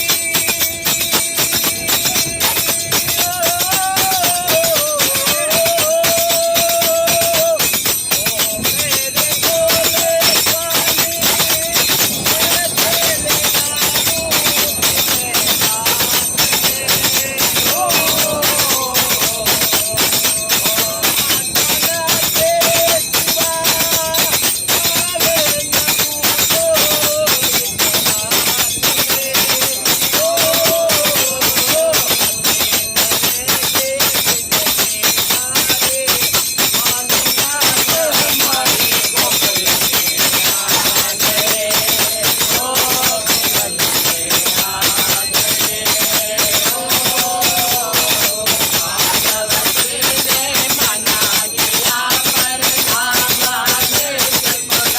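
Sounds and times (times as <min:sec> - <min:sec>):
jingling percussion: 0:00.0 - 0:54.9
person singing wavering melody: 0:00.0 - 0:54.9.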